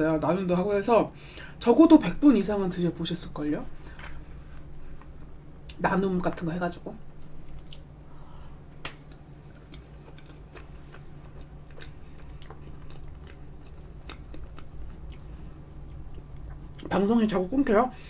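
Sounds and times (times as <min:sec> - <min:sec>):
wet chewing: 0:07.1 - 0:07.9, 0:09.0 - 0:16.9.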